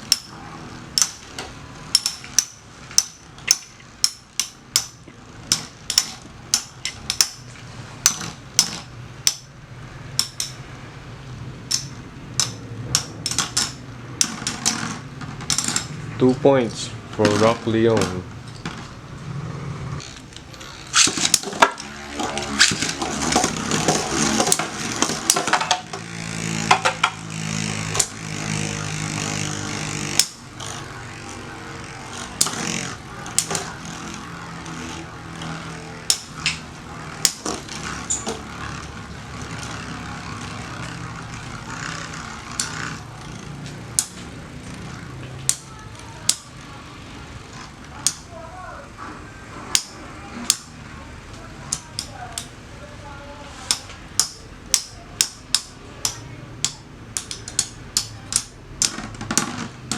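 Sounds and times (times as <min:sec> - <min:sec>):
metal tops clacking together: 0:00.0 - 0:09.5, 0:10.1 - 0:10.7, 0:11.6 - 0:16.1, 0:20.0 - 0:28.6
spinning tops whirring: 0:00.0 - 0:59.9.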